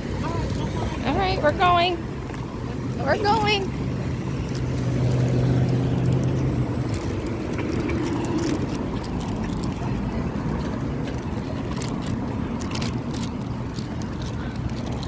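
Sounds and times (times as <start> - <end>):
low engine hum: 0.0 - 15.0
road traffic rumble: 0.0 - 15.0.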